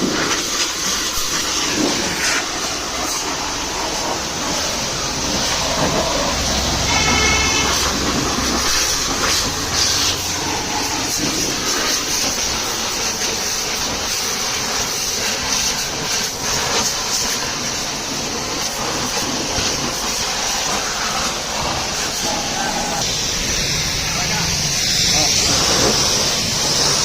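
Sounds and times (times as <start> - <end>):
water jet spraying: 0.0 - 27.0
water splashing: 0.5 - 14.5.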